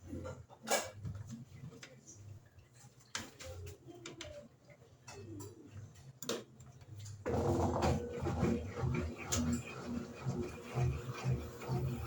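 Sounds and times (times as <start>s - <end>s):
washing machine motor hum: 7.2s - 12.0s.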